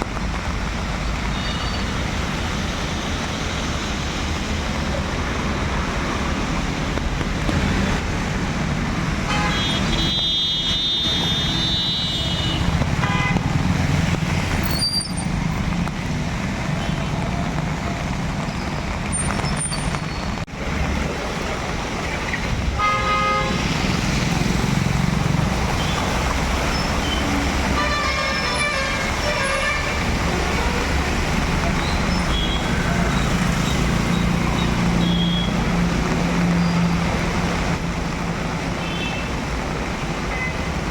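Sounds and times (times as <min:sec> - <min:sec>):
heavy rain: 0:00.0 - 0:40.9
traffic noise: 0:00.0 - 0:40.9
vehicle horns honking: 0:09.3 - 0:13.5, 0:22.8 - 0:23.6, 0:27.6 - 0:31.1.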